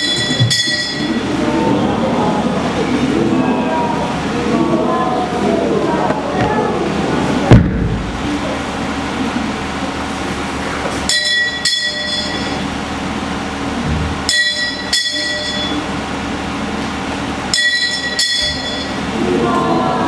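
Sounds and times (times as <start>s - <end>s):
metal bell ringing: 0.0s - 1.2s, 11.1s - 12.7s, 14.3s - 15.9s, 17.5s - 19.0s
murmur of a gathering: 0.0s - 20.0s
loud thump: 7.5s - 8.4s.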